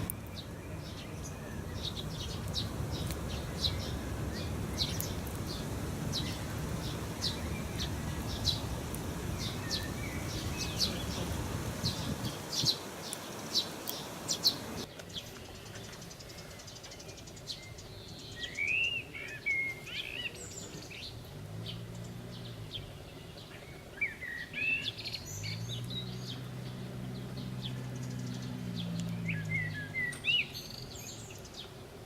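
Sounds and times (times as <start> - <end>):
low engine hum: 0.0 - 12.6, 20.6 - 31.8
small birds chirping: 0.0 - 32.0.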